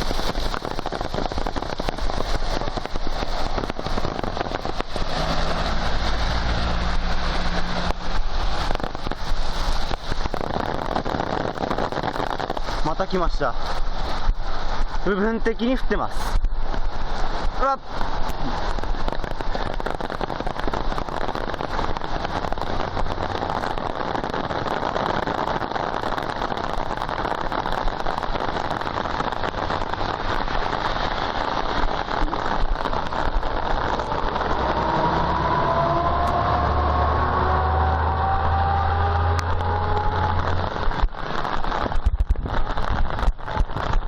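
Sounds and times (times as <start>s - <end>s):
torrential rain pouring: 0.0s - 44.0s
low hum with rising whine: 34.0s - 40.8s.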